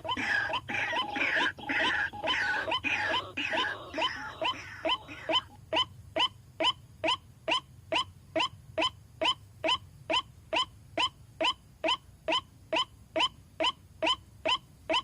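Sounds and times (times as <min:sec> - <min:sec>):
waterhen calling: 0:00.0 - 0:05.8.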